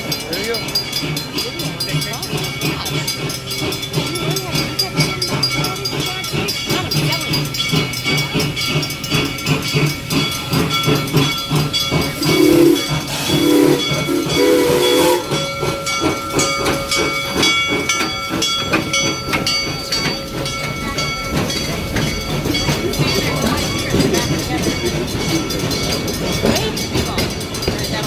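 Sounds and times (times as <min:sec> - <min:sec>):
steam hissing: 0:00.0 - 0:28.0
steam train running: 0:00.0 - 0:28.0
train whistle blasts: 0:12.2 - 0:17.1.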